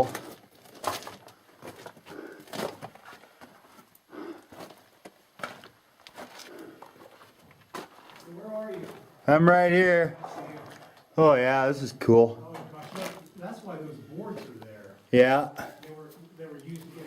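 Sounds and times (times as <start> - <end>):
footsteps on loose rock: 0.1 - 3.9, 4.5 - 9.1.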